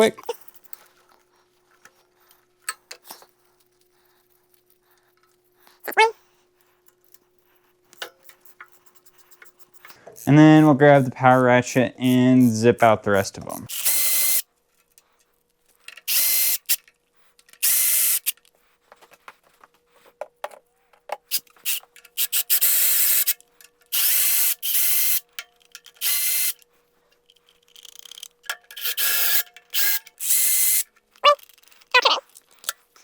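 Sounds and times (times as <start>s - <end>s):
power ratchet whirring: 13.7s - 14.4s, 16.1s - 16.8s, 17.6s - 18.4s, 21.3s - 26.6s, 27.7s - 30.9s.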